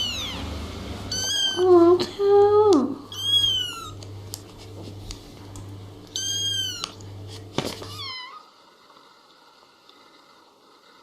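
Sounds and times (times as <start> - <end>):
cat meowing: 0.0 - 0.5, 1.1 - 1.7, 3.1 - 4.0, 6.1 - 7.0, 7.9 - 8.5.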